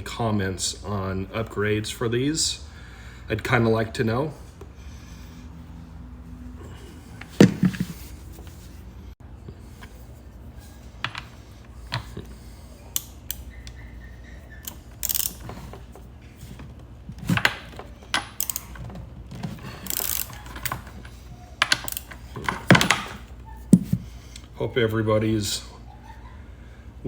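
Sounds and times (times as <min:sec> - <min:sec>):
tools clattering and scraping: 0:06.6 - 0:08.8, 0:09.6 - 0:24.3.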